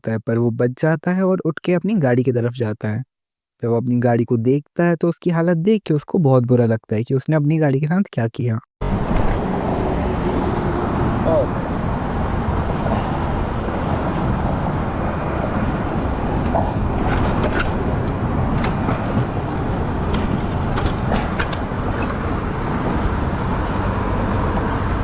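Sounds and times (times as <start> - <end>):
road traffic rumble: 8.8 - 25.0.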